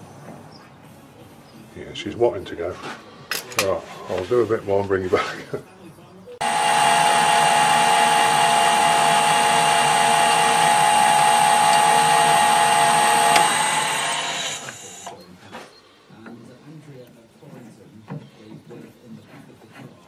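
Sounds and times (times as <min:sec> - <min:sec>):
metal lathe whining: 0:06.4 - 0:15.2.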